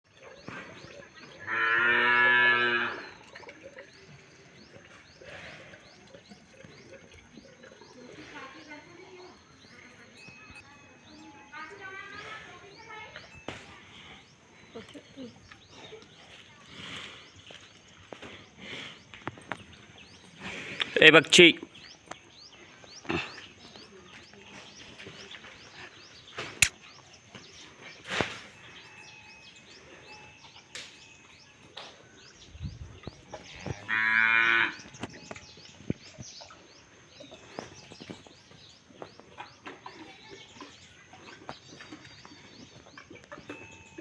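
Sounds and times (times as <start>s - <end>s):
small birds chirping: 0.1s - 44.0s
cow mooing: 1.5s - 3.2s, 33.5s - 34.8s.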